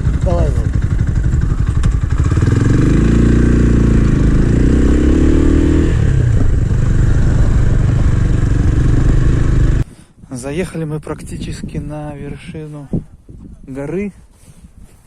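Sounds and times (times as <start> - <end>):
motorcycle engine accelerating: 0.0 - 9.8.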